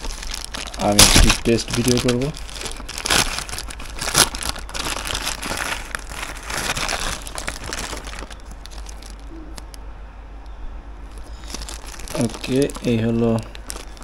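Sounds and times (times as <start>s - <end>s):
packaging crinkling and tearing: 0.0s - 9.8s, 11.0s - 14.0s.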